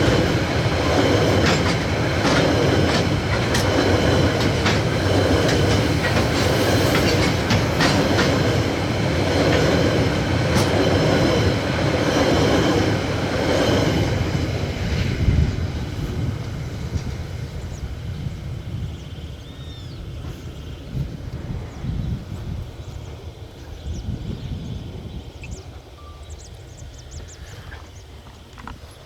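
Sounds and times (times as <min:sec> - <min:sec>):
wheels clacking over rail joints: 0:00.0 - 0:15.1
freight train rumbling: 0:00.0 - 0:29.0.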